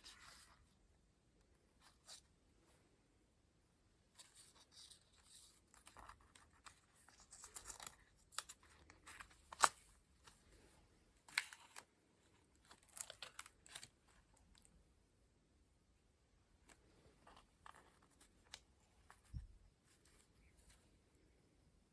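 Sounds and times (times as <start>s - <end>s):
paper pages rustling: 4.2s - 14.3s.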